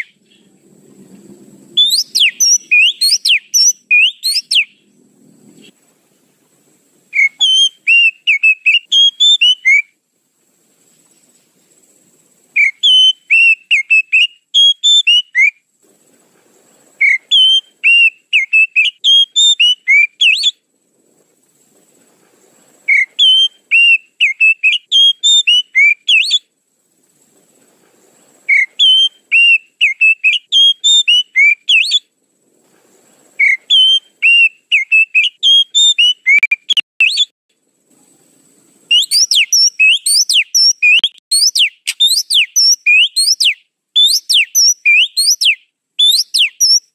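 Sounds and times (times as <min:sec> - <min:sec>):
bird whistling high notes: 0:01.8 - 0:04.7, 0:12.6 - 0:15.6, 0:28.5 - 0:32.0, 0:33.4 - 0:37.3, 0:38.9 - 0:46.9.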